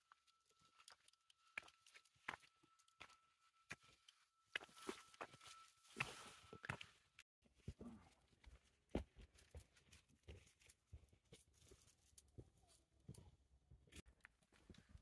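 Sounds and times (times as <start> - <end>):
footsteps on trail: 0.8 - 7.0.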